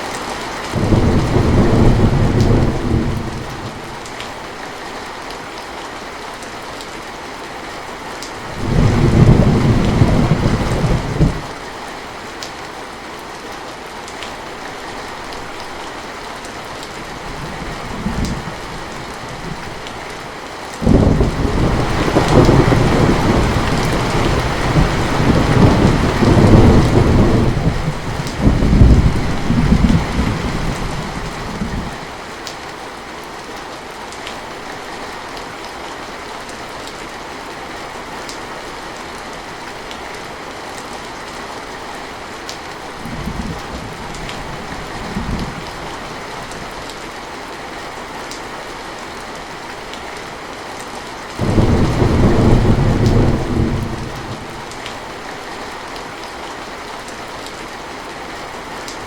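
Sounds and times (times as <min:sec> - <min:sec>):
heavy rain: 0:00.0 - 0:59.0
thunder rolling: 0:00.8 - 0:03.4, 0:20.8 - 0:32.0, 0:51.4 - 0:54.8.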